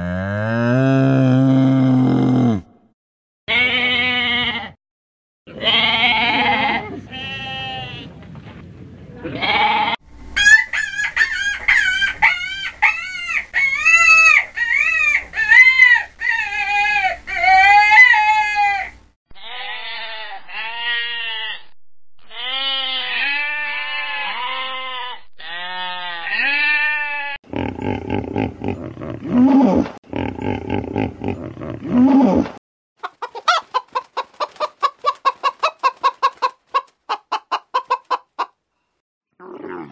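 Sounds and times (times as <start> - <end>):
goats and sheep bleating: 3.5 - 4.8, 5.5 - 8.1, 9.3 - 10.0, 19.4 - 27.4
hens clucking: 33.0 - 38.6.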